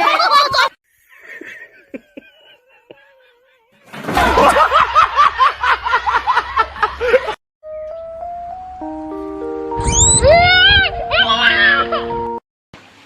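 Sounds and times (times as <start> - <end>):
laughter in bursts: 0.0 - 3.6, 4.2 - 7.4
stepped electronic tones: 9.8 - 10.4.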